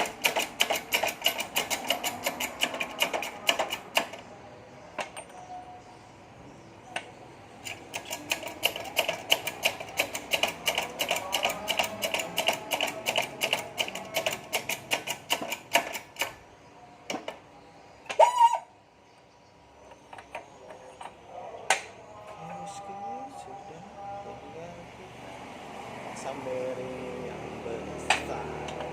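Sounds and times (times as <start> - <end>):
rapid metallic clicking: 0.0 - 4.2, 7.6 - 16.4
short loud squeak: 18.1 - 18.7.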